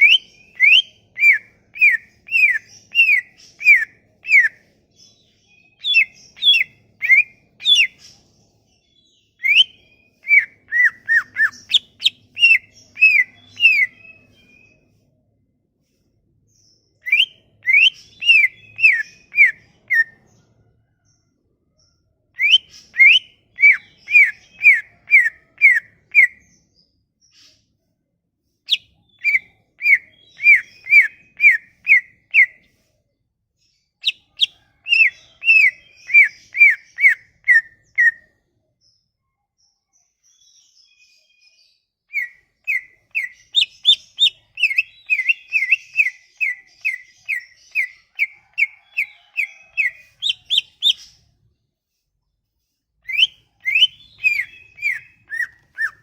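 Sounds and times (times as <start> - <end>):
songbird whistling notes: 0.0 - 8.2, 9.4 - 15.0, 17.0 - 20.2, 22.4 - 26.4, 28.7 - 32.7, 34.0 - 38.3, 42.1 - 51.3, 53.0 - 56.0.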